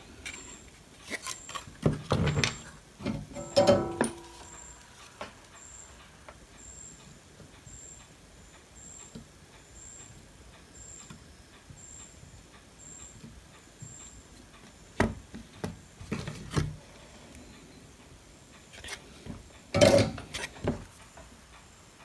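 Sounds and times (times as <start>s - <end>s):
metal tools clattering: 2.3s - 4.7s, 19.8s - 20.6s
metallic ring: 3.3s - 4.8s.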